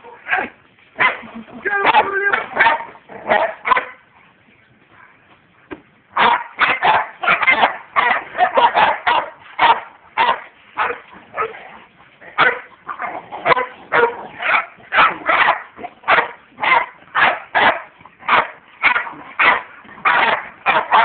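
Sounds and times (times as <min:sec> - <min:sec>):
dog barking: 0:01.8 - 0:04.0, 0:06.2 - 0:11.6, 0:12.4 - 0:21.0.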